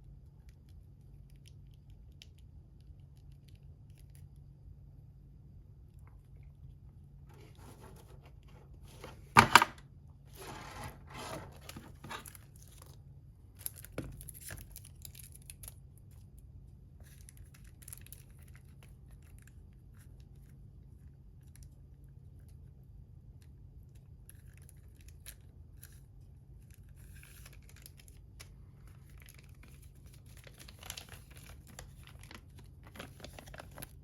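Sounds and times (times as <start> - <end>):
packaging crinkling: 27.0 - 34.0
packaging ripping: 29.2 - 34.0.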